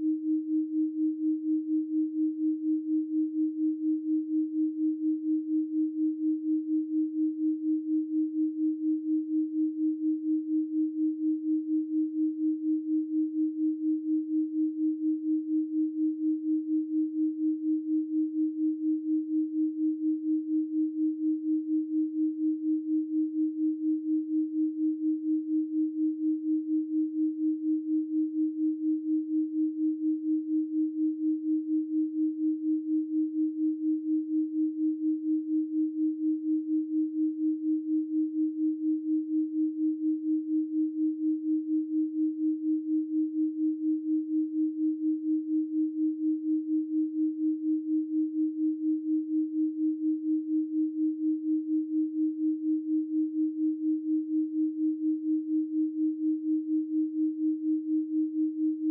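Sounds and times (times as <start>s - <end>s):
pulsing electronic sine tone: 0.0s - 58.9s.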